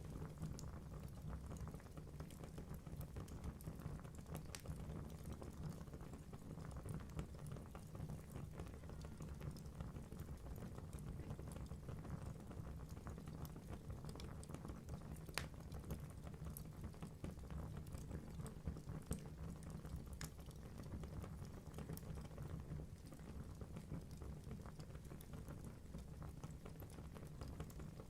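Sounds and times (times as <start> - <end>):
wood fire rumbling: 0.0 - 28.0
logs crackling and popping: 13.4 - 16.0, 20.0 - 20.6.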